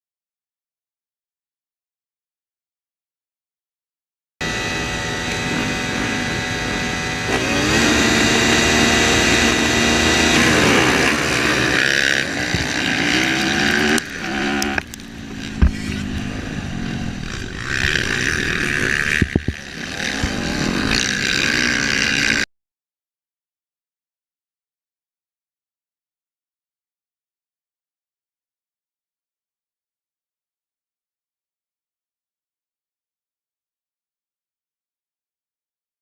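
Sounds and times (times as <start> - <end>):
road noise: 4.4 - 22.5
vehicle engine revving: 4.4 - 22.5.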